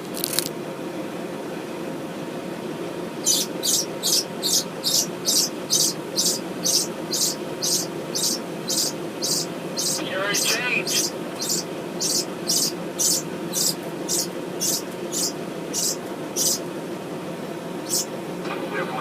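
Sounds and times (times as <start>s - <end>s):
steady low hum: 0.0s - 19.0s
bird chirping: 3.2s - 16.6s, 17.8s - 18.1s.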